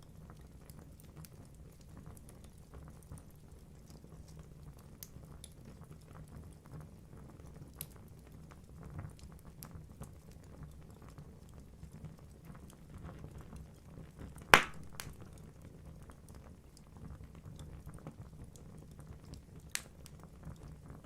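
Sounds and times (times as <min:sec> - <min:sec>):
fire crackling: 0:14.5 - 0:15.7
wood log popping: 0:14.6 - 0:15.5
fire rumbling: 0:14.6 - 0:15.6.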